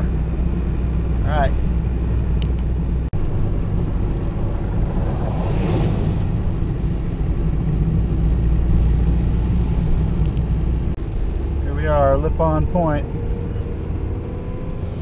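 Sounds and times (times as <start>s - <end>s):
car driving on snowy road: 0.0s - 15.0s.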